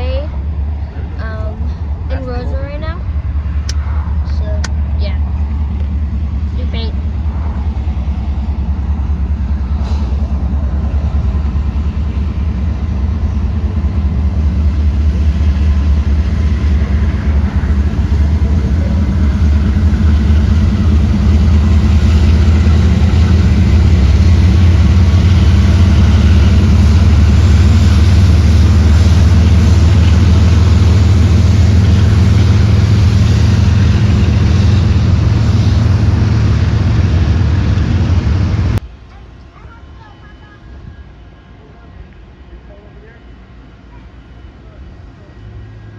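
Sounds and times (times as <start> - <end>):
diesel locomotive engine rumble: 0.0 - 45.9.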